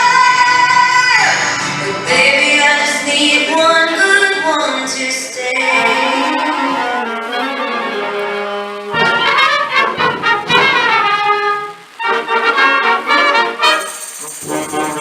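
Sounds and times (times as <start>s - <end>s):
live brass music: 5.6s - 15.0s.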